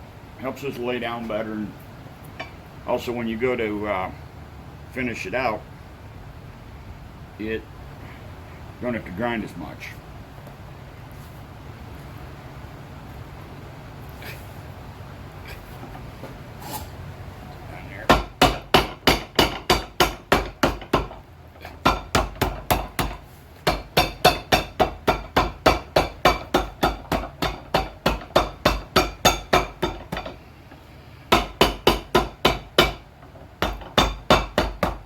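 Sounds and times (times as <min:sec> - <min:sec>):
hammer striking leather sole: 0:18.1 - 0:30.4, 0:31.3 - 0:35.0.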